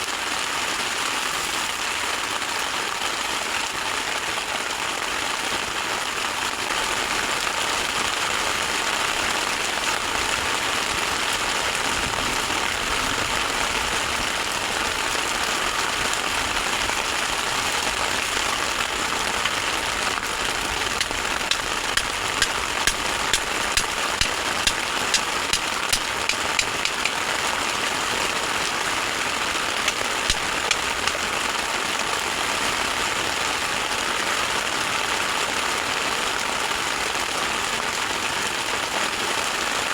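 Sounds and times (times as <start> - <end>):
heavy rain on a shelter: 0.0 - 39.9
sharp taps of drops: 21.0 - 27.2, 29.9 - 31.2.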